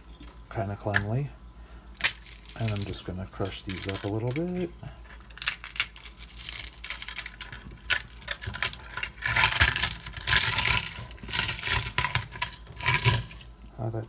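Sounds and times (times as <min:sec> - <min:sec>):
hands crushing bird seed: 0:01.9 - 0:13.7.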